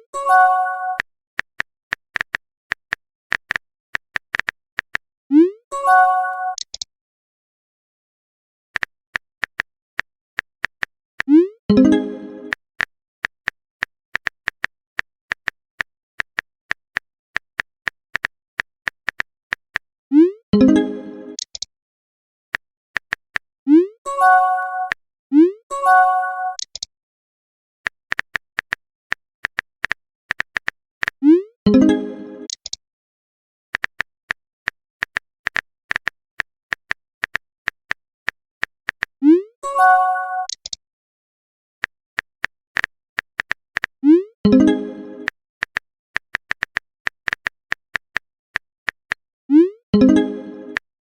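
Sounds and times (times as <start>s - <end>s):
phone keyboard typing clicks: 0.9s - 5.0s, 6.5s - 6.9s, 8.8s - 13.4s, 21.4s - 21.7s, 26.5s - 26.9s, 29.4s - 32.8s, 34.7s - 39.1s, 40.4s - 40.8s, 41.8s - 43.9s, 44.5s - 48.3s, 50.0s - 50.8s.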